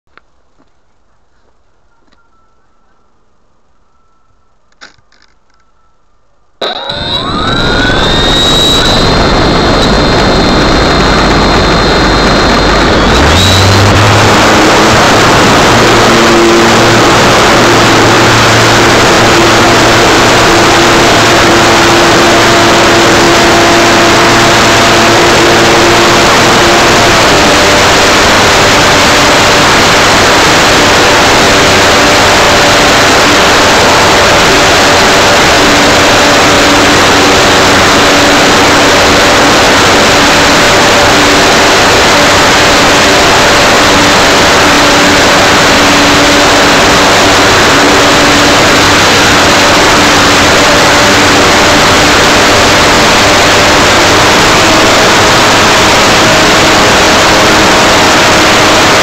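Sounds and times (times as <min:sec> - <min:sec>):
faint electric motor hum: 0:06.6 - 0:42.8.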